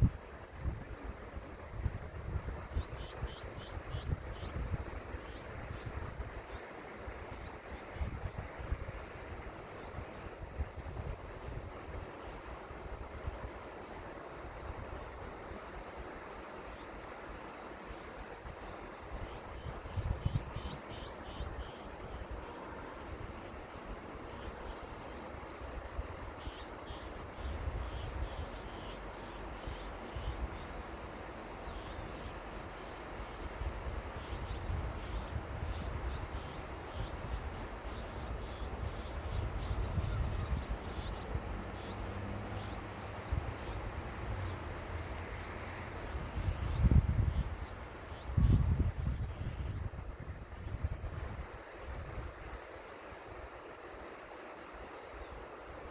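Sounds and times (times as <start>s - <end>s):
wind buffeting microphone: 33.7s - 42.0s, 46.1s - 52.4s
river water rushing: 40.8s - 46.1s.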